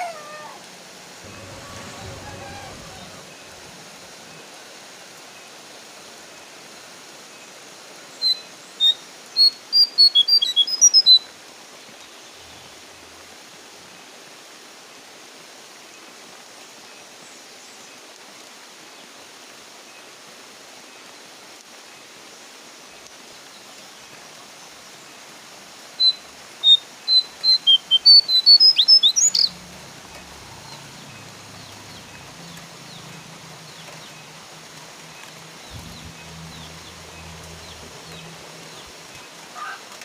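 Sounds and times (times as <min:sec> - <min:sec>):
falling rain hiss: 0:00.0 - 0:40.0
bird whistled call: 0:08.2 - 0:11.2, 0:26.0 - 0:29.6.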